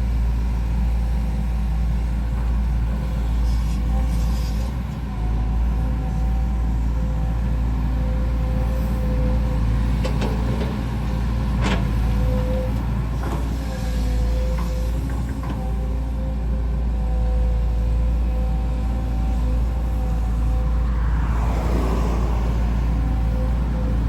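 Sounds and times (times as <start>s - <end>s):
diesel engine running under load: 0.0s - 24.0s
faint hydraulic whine: 3.2s - 4.8s, 17.3s - 24.0s.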